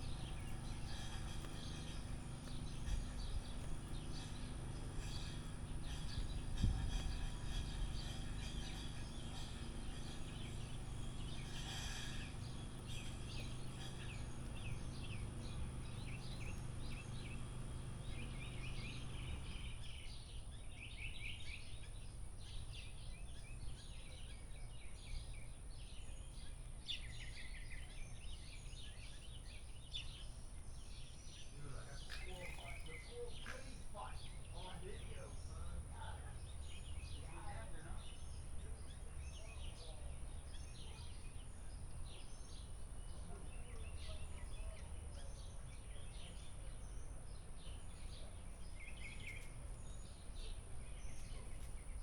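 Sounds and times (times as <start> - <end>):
low background rumble: 0.0 - 20.9
small songbirds chirping: 0.0 - 52.0.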